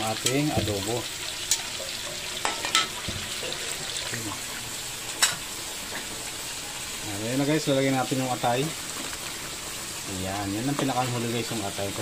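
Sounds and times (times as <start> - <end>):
meat sizzling in a wok: 0.0 - 12.0
metal utensil clicking on pan: 0.2 - 0.6, 1.4 - 3.0.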